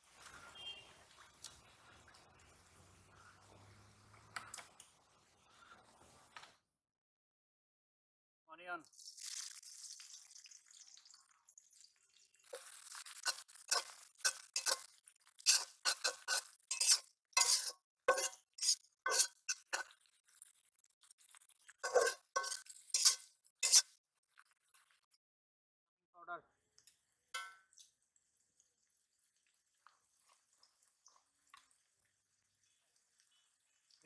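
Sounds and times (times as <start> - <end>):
onions sizzling in oil: 12.2 - 20.0, 21.2 - 23.9
metal spatula clinking in pan: 12.6 - 19.9, 21.8 - 23.9, 27.4 - 27.7.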